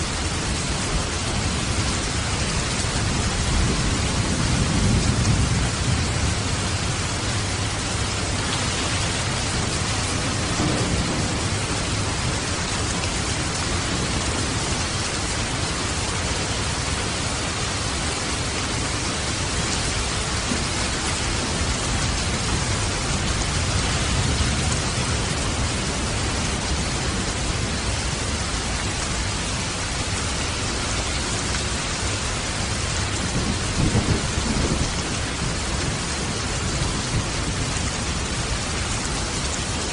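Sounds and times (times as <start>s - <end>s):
rain: 0.0s - 39.9s
waterfall rushing: 6.6s - 33.0s.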